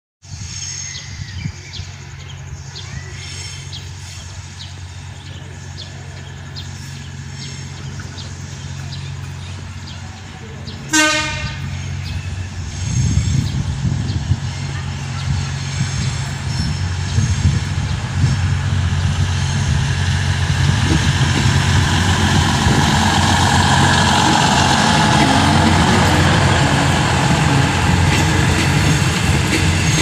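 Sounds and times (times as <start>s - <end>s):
diesel train engine drone: 0.2s - 30.0s
train horn blast: 10.8s - 12.0s, 23.2s - 30.0s.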